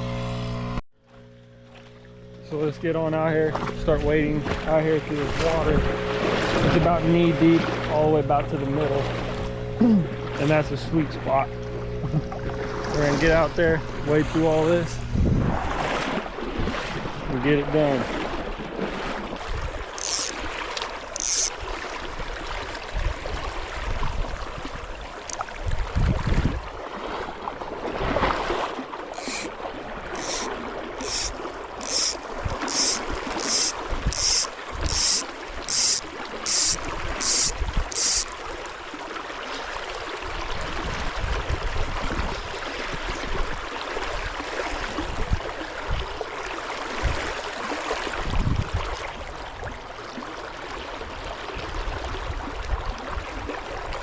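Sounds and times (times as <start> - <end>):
splashing while wading: 4.4 - 6.8, 15.6 - 17.3, 18.0 - 42.8
wind on the microphone: 14.7 - 17.4, 25.6 - 26.8, 48.2 - 49.0
short high-pitched rasps: 20.0 - 20.4, 21.2 - 21.5, 29.2 - 38.4.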